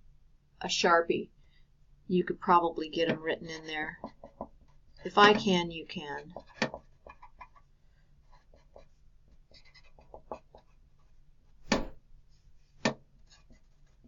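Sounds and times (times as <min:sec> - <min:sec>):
pen scratching on paper: 0:06.3 - 0:11.2, 0:13.2 - 0:14.0.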